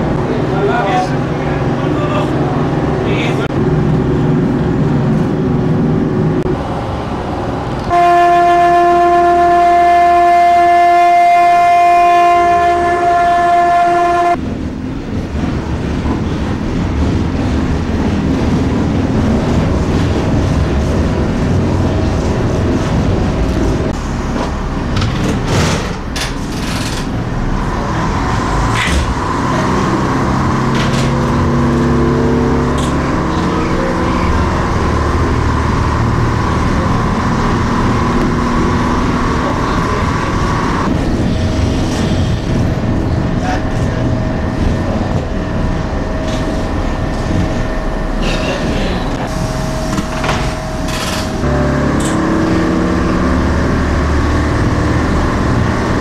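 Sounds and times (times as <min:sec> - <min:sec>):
railcar engine: 0:00.0 - 0:56.0
wheels on the track: 0:00.0 - 0:56.0
diesel railcar horn: 0:07.8 - 0:14.4, 0:50.6 - 0:56.0.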